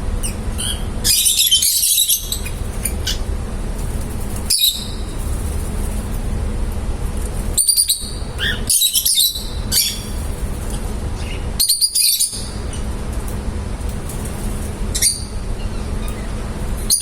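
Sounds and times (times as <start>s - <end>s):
steady low rumble: 0.0s - 11.6s
small parrots chirping: 0.2s - 3.3s, 4.4s - 5.1s, 7.5s - 10.3s, 11.2s - 12.8s, 14.9s - 16.3s.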